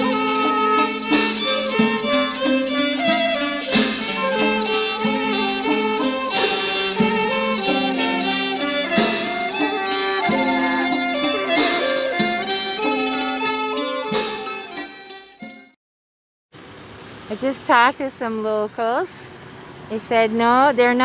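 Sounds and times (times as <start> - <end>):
melody of held notes: 0.0 - 15.2.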